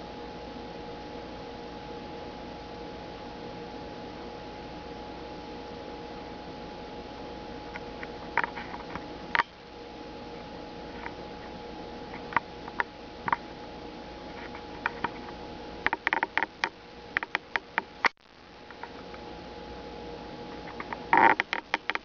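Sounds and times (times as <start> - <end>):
squirrel crunching food: 7.7 - 9.5, 14.2 - 19.2, 20.5 - 22.0.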